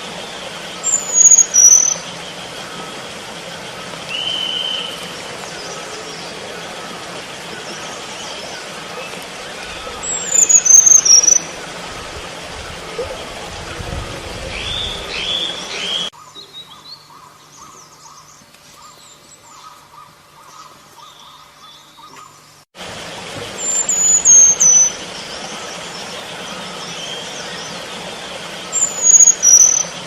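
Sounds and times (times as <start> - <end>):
bird whistled call: 0.8 - 2.9, 4.1 - 5.8, 9.6 - 11.5, 23.6 - 25.6, 28.7 - 30.0.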